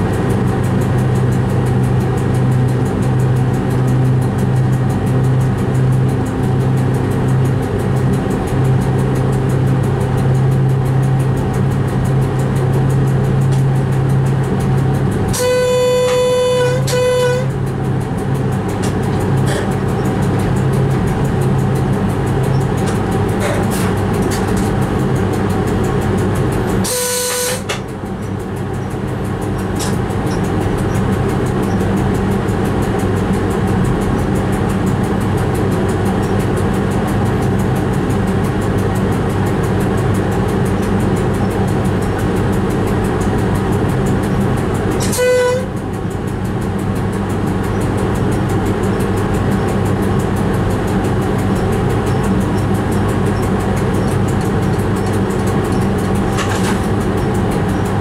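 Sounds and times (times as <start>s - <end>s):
train rumble and hum: 0.0s - 58.0s
train horn toot: 15.3s - 17.6s, 26.8s - 27.8s, 45.0s - 45.8s.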